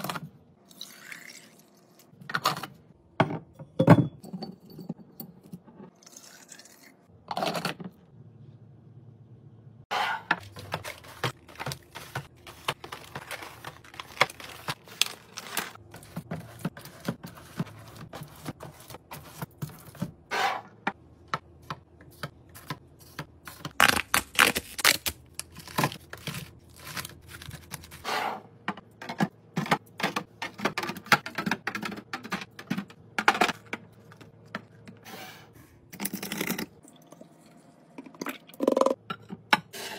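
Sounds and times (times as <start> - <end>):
containers clattering: 10.2 - 20.0
food packaging clicking and scraping: 10.2 - 20.6, 21.3 - 35.0.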